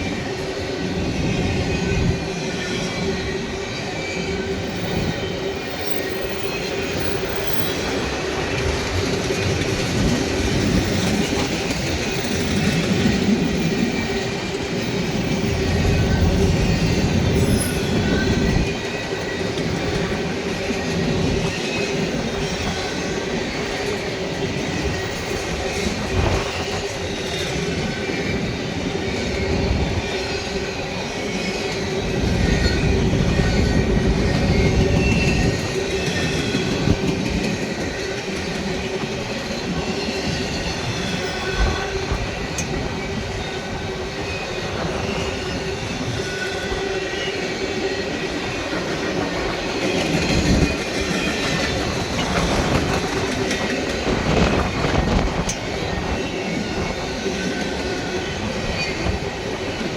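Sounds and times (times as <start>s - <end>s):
clickety-clack of rails: 0.0s - 59.9s
freight train wheels rumbling: 0.0s - 59.9s
high wheel squeals: 10.6s - 20.2s.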